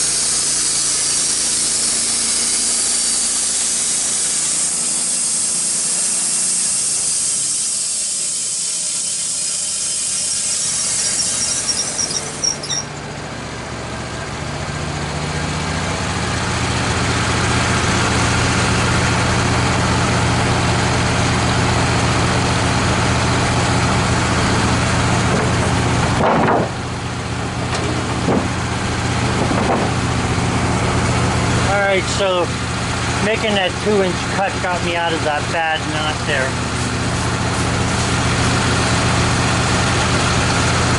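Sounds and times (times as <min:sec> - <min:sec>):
bandsaw blade cutting log: 0:00.0 - 0:13.0, 0:23.2 - 0:40.9
sawmill engine running: 0:00.0 - 0:40.9.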